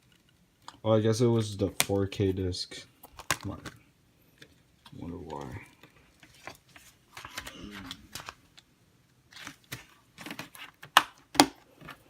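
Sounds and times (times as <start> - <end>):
plastic case clicks and rustling: 3.0 - 3.8
plastic case snapping: 9.7 - 11.6.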